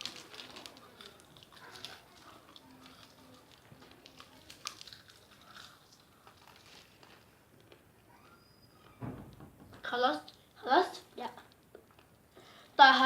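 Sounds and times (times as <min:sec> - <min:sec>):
wrapper crinkling: 0:00.0 - 0:07.8
chewing and crunching candy: 0:00.0 - 0:08.2.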